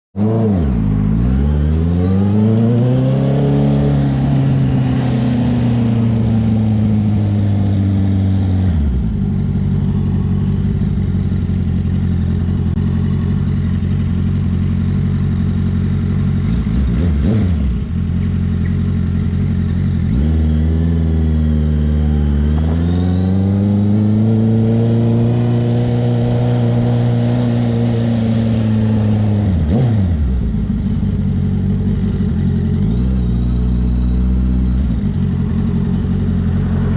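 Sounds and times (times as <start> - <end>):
motorcycle engine revving: 0.2 - 36.9
motorcycle engine idling: 8.7 - 20.1, 30.1 - 36.9.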